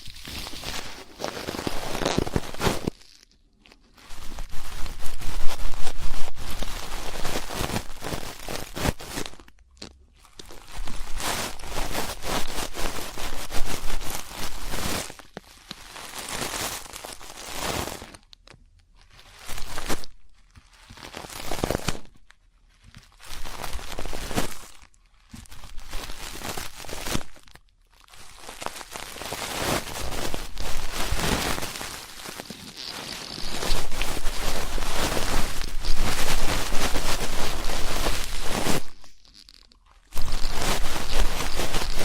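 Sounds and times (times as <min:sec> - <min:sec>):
ear pick scratching inside ear: 0:30.0 - 0:39.5, 0:40.2 - 0:42.0.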